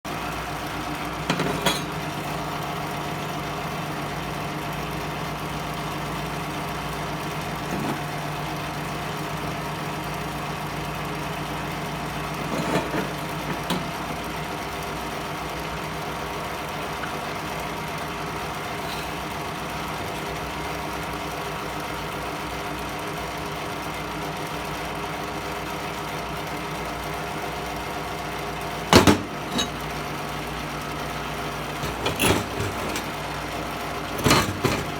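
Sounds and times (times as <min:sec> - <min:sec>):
stick welder humming: 0:18.5 - 0:20.9, 0:28.9 - 0:34.9.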